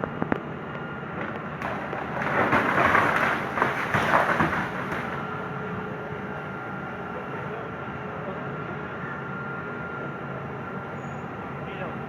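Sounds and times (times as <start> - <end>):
machine hum with faint whine: 0.0 - 12.0
rustling crackling noise: 1.2 - 5.4.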